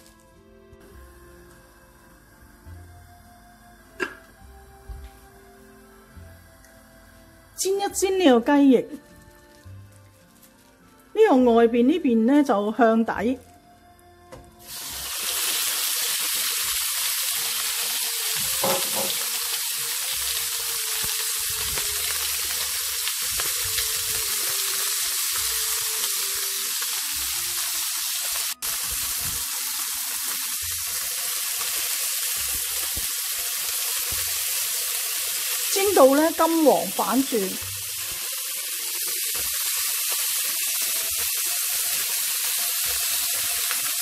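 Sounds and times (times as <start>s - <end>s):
chicken sizzling in hot oil: 14.6s - 44.0s.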